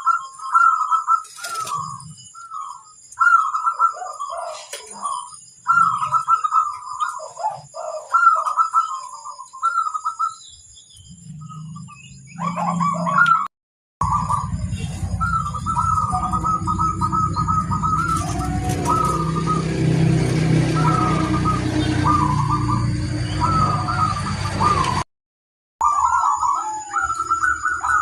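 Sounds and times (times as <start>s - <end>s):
dove cooing: 0.0s - 10.4s, 11.3s - 25.0s, 25.8s - 28.0s
low hum: 14.0s - 25.0s.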